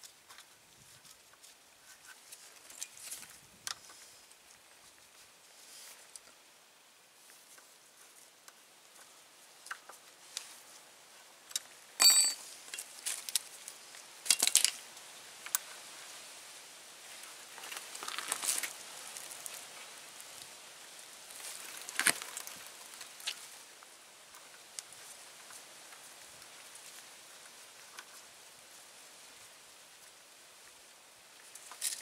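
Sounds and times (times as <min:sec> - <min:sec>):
metal tools and bolts clinking: 0:12.0 - 0:12.9.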